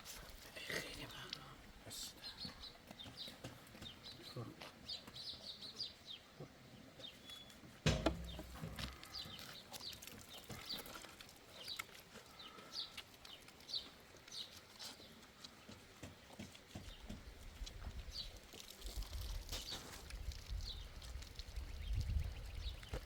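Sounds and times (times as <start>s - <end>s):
birds chirping: 0.0s - 18.7s, 19.6s - 23.0s
loud thump: 7.8s - 8.8s.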